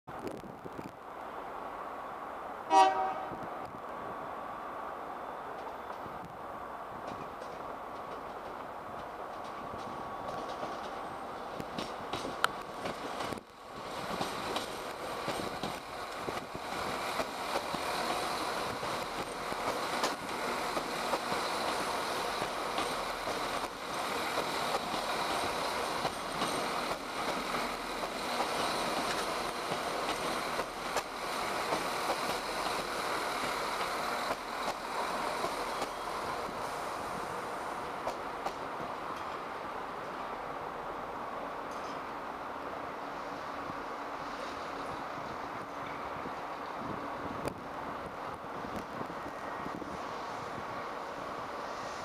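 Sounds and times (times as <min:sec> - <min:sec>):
diesel train rumbling: 0:00.1 - 0:52.0
wheels clicking over rail joints: 0:11.6 - 0:36.0.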